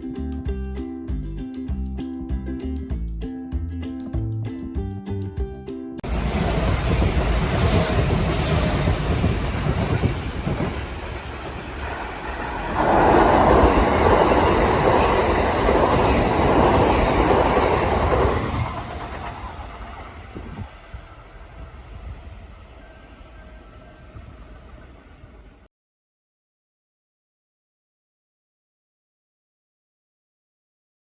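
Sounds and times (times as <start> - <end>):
electric train passing: 6.0 - 25.7.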